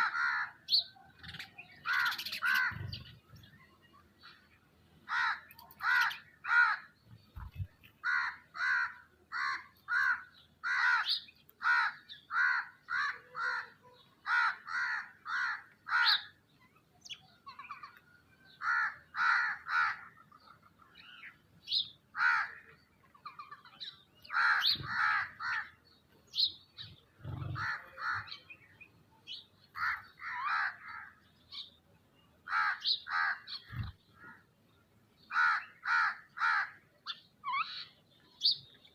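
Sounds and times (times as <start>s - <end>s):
crows cawing: 0.0s - 3.1s, 5.1s - 7.0s, 8.0s - 16.4s, 17.6s - 20.3s, 22.1s - 22.8s, 24.3s - 25.8s, 27.2s - 28.4s, 29.7s - 31.2s, 32.5s - 34.5s, 35.2s - 37.8s.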